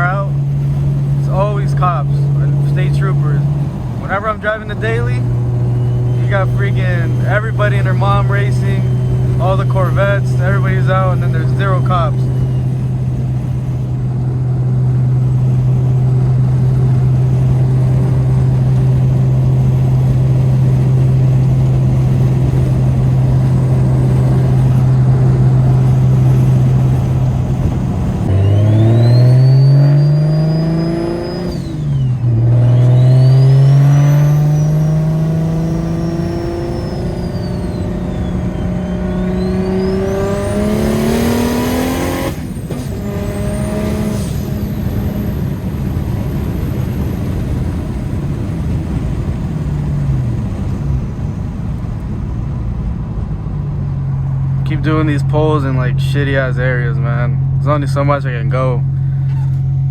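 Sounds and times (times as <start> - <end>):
car engine accelerating: 0.0 - 59.9
turbo whistle: 28.3 - 34.9, 35.5 - 40.6.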